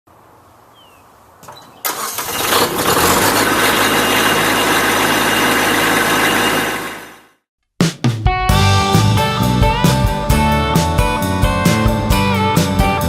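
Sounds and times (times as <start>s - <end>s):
engine starting and running: 1.8s - 7.4s.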